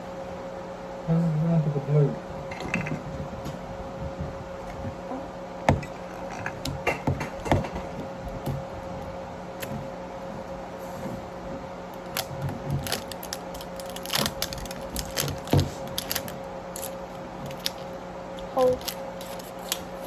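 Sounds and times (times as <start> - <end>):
faint steady hum: 0.0 - 20.0
plastic and paper wrapping crinkling: 12.0 - 17.9, 18.5 - 20.0.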